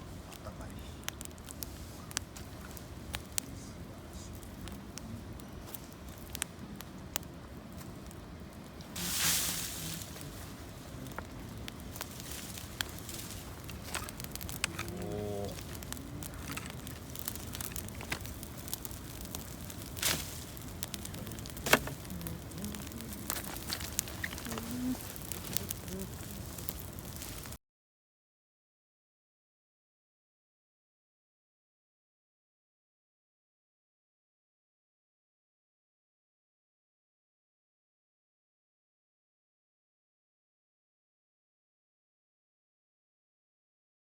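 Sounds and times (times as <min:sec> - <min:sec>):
campfire crackling: 0:00.0 - 0:27.6
low steady rumble: 0:00.0 - 0:27.6
sharp pops of fire: 0:00.1 - 0:27.6.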